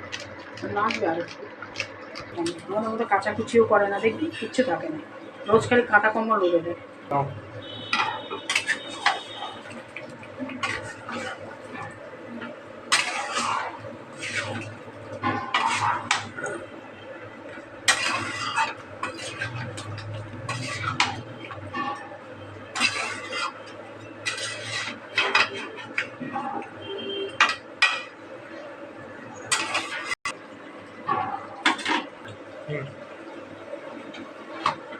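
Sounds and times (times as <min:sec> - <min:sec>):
metal spoon scraping a pot: 0:07.8 - 0:09.6, 0:10.6 - 0:12.0, 0:12.9 - 0:16.5, 0:17.9 - 0:22.1, 0:22.7 - 0:26.6, 0:29.5 - 0:30.2.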